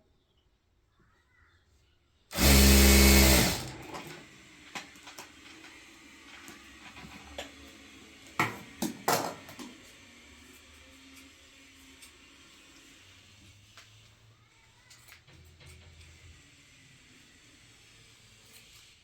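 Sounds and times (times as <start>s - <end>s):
sewing machine motor: 2.3s - 4.4s.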